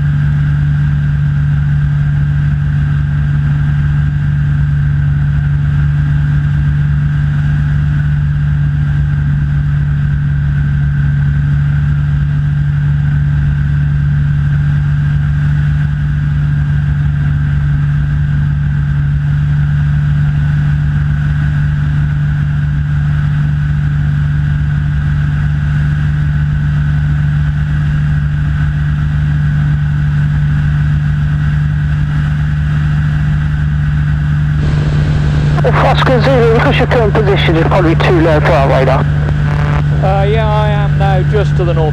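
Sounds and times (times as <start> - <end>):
light aircraft engine drone: 34.6 - 41.9.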